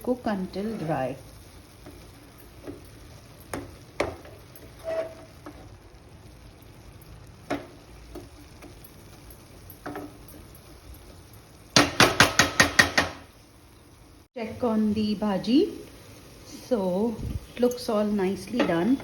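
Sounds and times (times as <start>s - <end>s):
faint sizzle: 0.0s - 19.0s
spatula stirring in a pot: 0.1s - 11.5s
loud knocks on pot: 11.8s - 13.2s.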